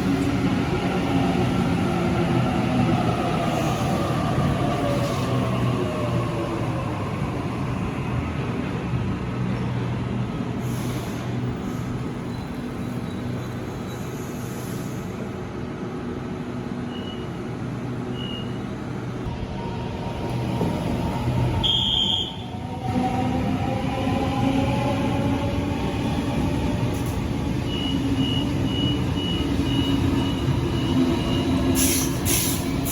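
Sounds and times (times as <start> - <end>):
electric train whining and rumbling: 11.2 - 32.9.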